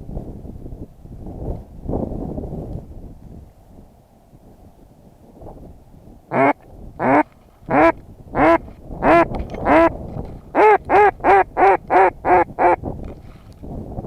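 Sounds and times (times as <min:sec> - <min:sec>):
duck call quacking: 0:06.3 - 0:09.9, 0:10.6 - 0:12.8.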